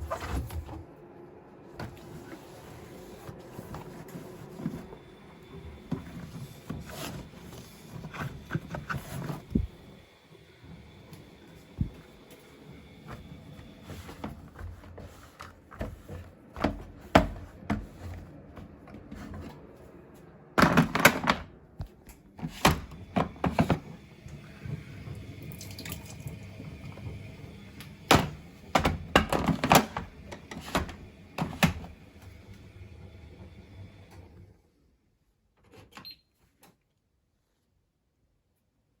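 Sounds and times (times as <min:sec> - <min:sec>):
water splashing and running: 0:25.1 - 0:26.6.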